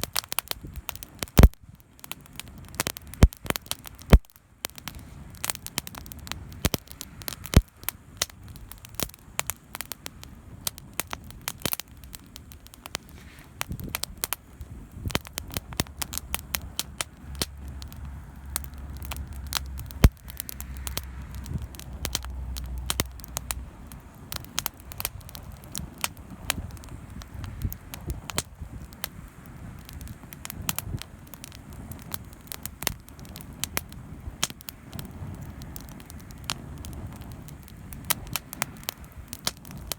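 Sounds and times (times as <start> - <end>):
campfire crackling and popping: 0.0 - 39.9
low rumble: 15.2 - 25.4.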